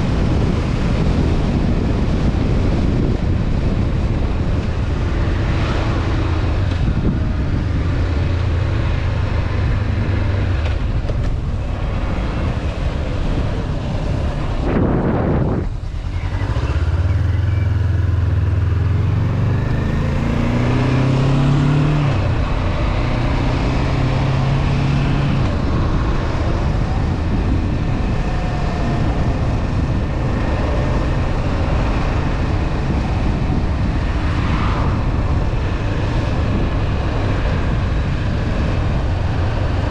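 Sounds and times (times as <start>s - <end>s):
wind rushing: 0.0s - 17.0s, 17.8s - 39.9s
motorcycle engine running: 0.0s - 20.6s.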